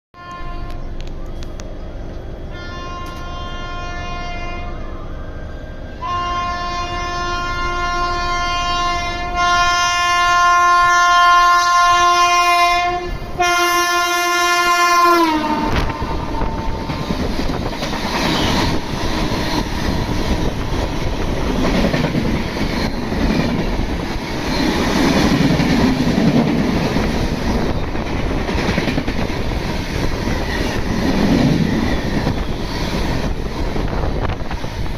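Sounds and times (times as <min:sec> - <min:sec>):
train horn blast: 0:00.2 - 0:01.0, 0:02.4 - 0:05.1, 0:05.9 - 0:17.0
train coaches clickety-clack: 0:00.2 - 0:03.6, 0:11.5 - 0:34.9.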